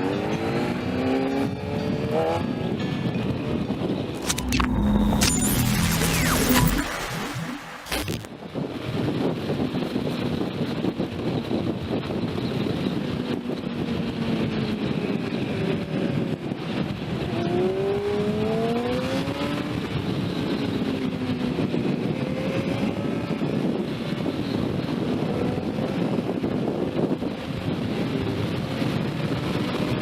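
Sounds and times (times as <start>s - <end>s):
wind rush on microphone: 8.5s - 30.0s.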